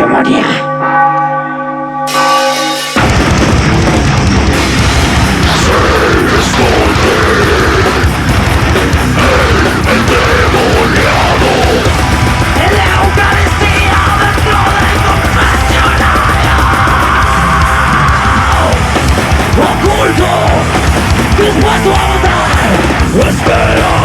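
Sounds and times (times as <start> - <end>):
distorted guitars: 0.0 - 24.0
drums: 2.1 - 24.0
bass: 3.0 - 24.0.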